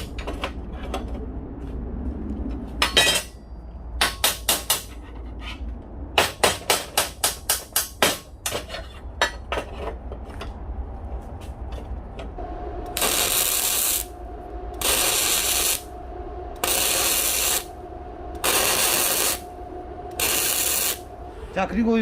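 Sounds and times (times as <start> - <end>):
arc welding crackle: 12.8 - 21.2.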